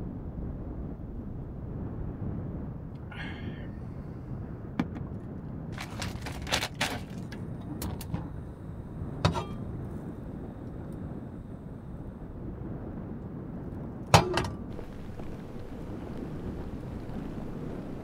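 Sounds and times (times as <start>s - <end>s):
steady low rumble: 0.0s - 18.0s
objects clicking and knocking: 5.8s - 8.4s.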